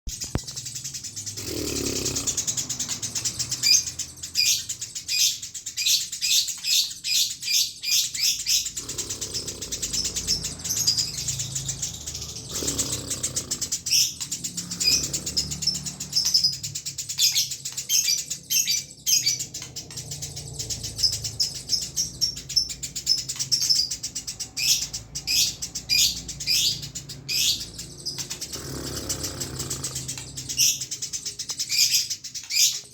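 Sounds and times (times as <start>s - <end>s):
sparrow chirping: 0.1s - 32.9s.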